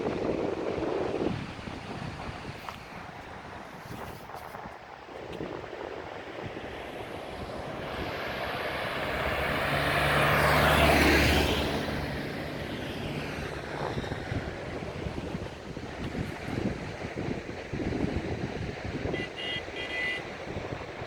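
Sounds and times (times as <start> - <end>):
engine passing by: 6.7 - 16.6.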